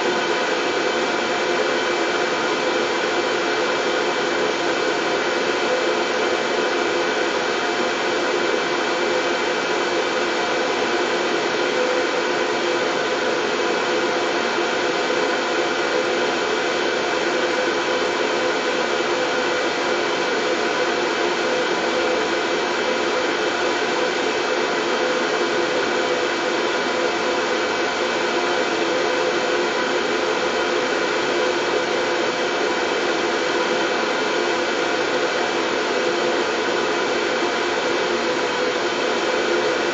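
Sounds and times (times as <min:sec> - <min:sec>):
white noise: 0:00.0 - 0:39.9.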